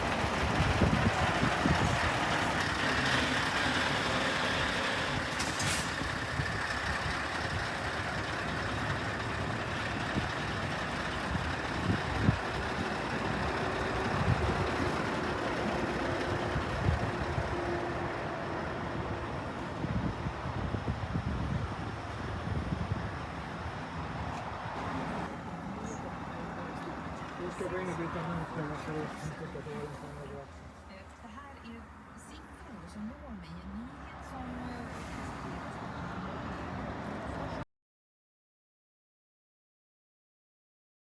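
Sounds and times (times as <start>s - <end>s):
wind buffeting microphone: 0.0s - 2.6s, 6.0s - 17.6s, 19.3s - 23.4s
truck diesel engine running: 0.0s - 23.6s, 24.8s - 34.6s.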